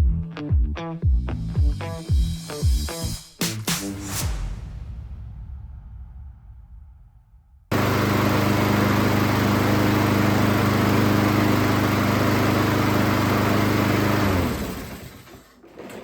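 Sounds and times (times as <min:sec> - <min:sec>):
lawn mower engine running: 0:07.7 - 0:15.6.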